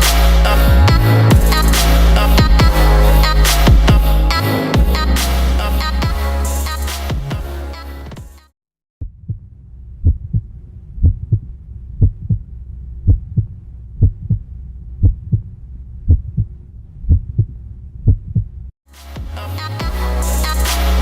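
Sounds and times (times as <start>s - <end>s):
heartbeat double thump: 12.0s - 12.4s, 13.1s - 14.4s.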